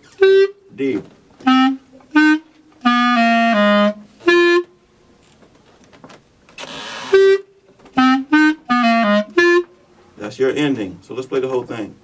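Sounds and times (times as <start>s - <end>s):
clarinet low notes: 0.0s - 4.9s, 6.8s - 10.2s.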